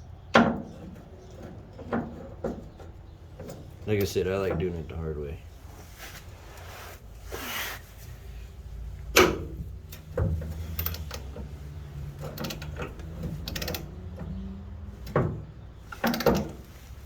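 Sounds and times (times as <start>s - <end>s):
hand ratchet clicking: 12.2s - 14.0s.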